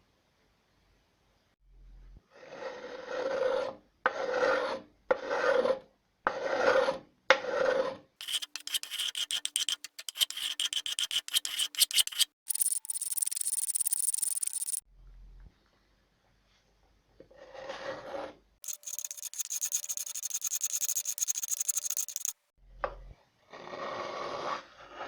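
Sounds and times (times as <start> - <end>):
hand rasp scraping wood: 8.2 - 14.8, 18.6 - 22.3.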